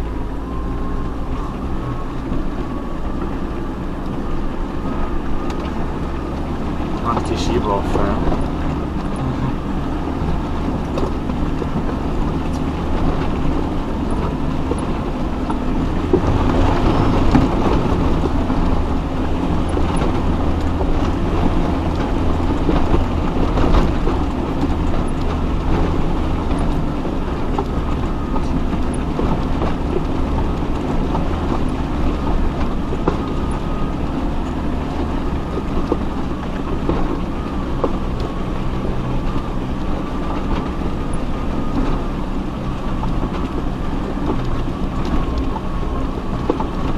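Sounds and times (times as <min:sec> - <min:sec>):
low engine rumble: 0:00.0 - 0:46.9
vehicle body rattling and knocking: 0:00.0 - 0:46.9.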